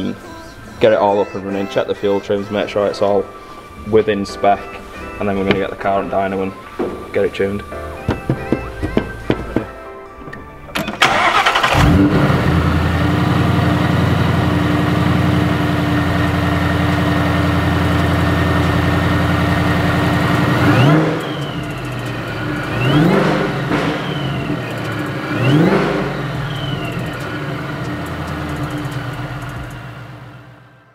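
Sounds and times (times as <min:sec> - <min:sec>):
car engine idling: 0:11.0 - 0:30.8
engine revving with whine: 0:11.2 - 0:30.7.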